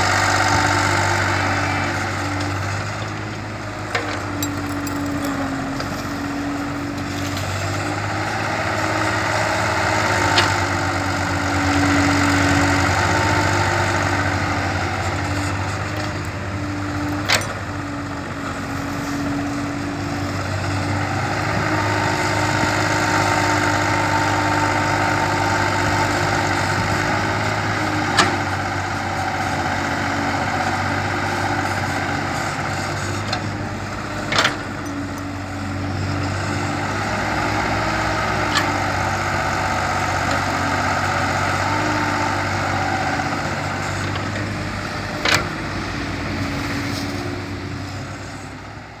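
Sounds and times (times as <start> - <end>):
excavator engine under load: 0.0 - 49.0.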